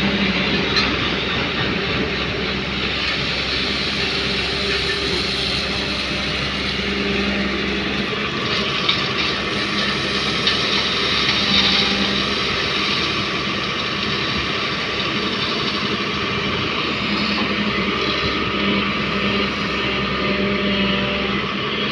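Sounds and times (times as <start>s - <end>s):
diesel machinery running: 0.0s - 21.9s.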